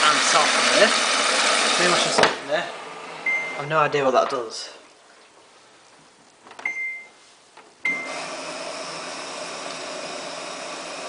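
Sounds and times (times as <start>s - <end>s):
short electronic beeps: 3.2s - 3.6s, 6.6s - 7.2s.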